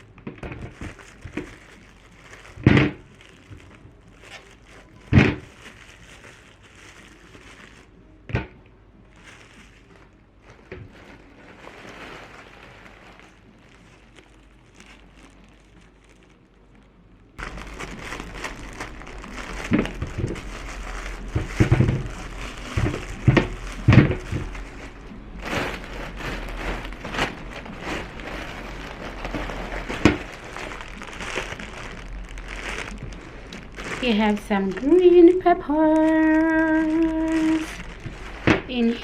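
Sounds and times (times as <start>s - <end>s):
plastic bags rustling: 0.0s - 39.0s
items knocking down: 19.4s - 35.0s.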